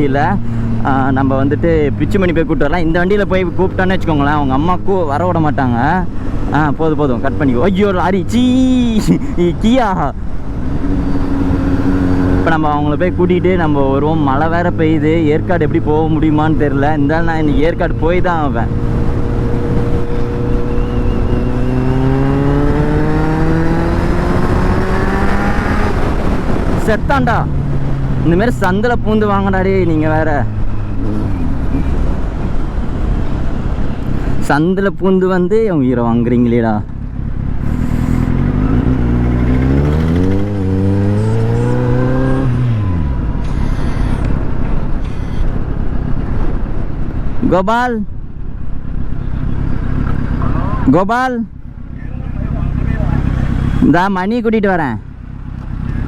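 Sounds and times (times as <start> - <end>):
road and wind noise: 0.0 - 56.0
motorcycle engine accelerating: 10.2 - 34.4, 36.8 - 47.2, 51.5 - 53.8, 54.8 - 56.0.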